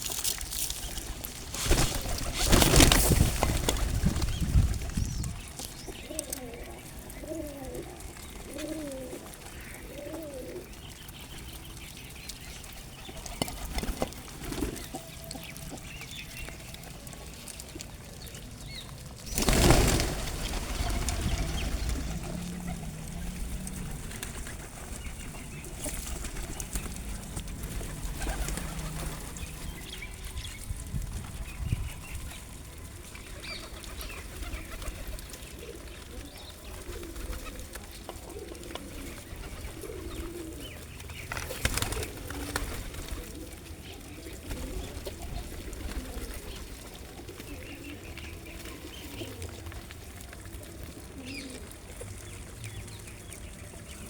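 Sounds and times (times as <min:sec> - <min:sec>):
wings flapping: 0:00.0 - 0:06.6, 0:13.0 - 0:15.1, 0:19.1 - 0:31.6, 0:33.2 - 0:52.2
pigeons cooing: 0:00.0 - 0:54.0.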